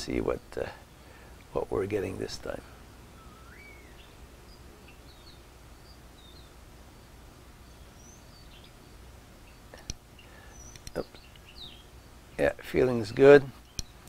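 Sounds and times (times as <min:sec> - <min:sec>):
steady low hum: 0:00.0 - 0:14.0
faint bird chirps: 0:02.6 - 0:12.5
sharp click: 0:09.8 - 0:10.0, 0:10.6 - 0:11.4.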